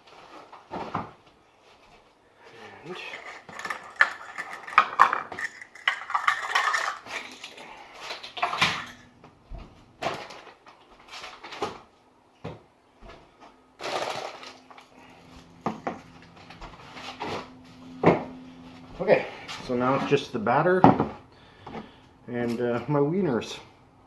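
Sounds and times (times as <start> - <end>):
utensils and dishes clattering: 2.9 - 9.2.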